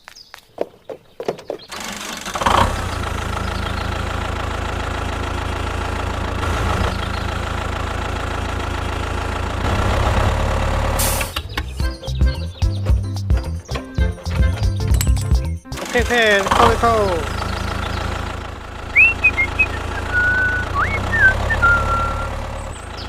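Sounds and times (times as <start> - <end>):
engine idling: 1.7 - 12.5, 13.5 - 23.0.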